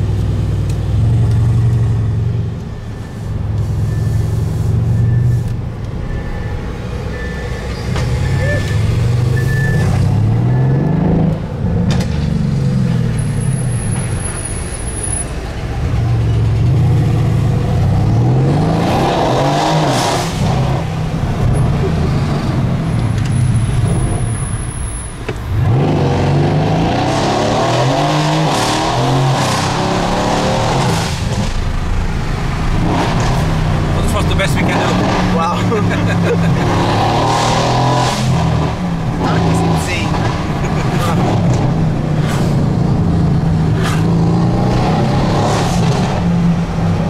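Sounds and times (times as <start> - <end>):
car engine accelerating hard: 25.5 - 47.0.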